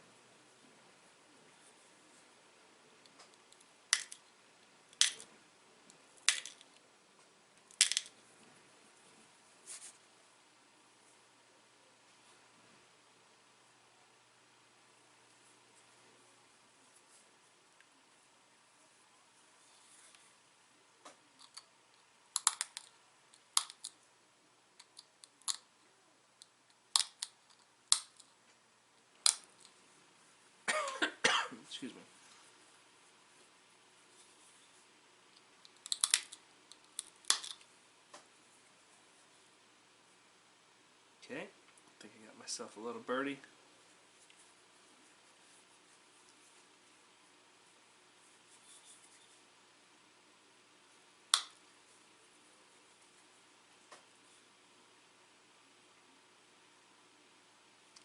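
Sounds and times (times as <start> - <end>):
stone flakes snapping clicks: 4.9 - 5.2, 26.9 - 28.3, 35.6 - 37.6, 51.3 - 51.6.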